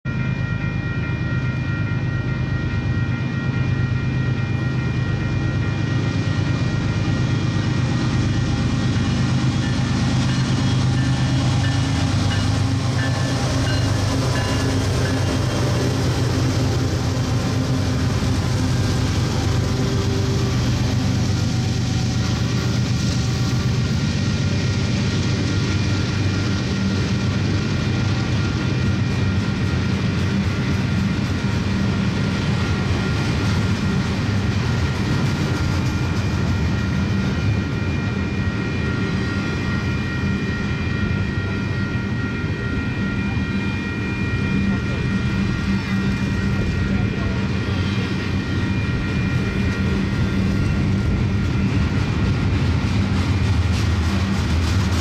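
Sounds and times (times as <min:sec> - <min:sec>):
steady higher tones: 0:00.1 - 0:28.7
locomotive engine drone: 0:00.1 - 0:55.0
train cars rolling on rails: 0:00.1 - 0:55.0.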